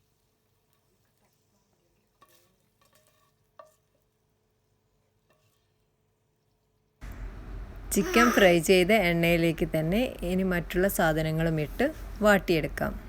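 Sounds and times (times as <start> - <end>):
metal spatula scraping frying pan: 2.1 - 3.9, 5.3 - 5.7.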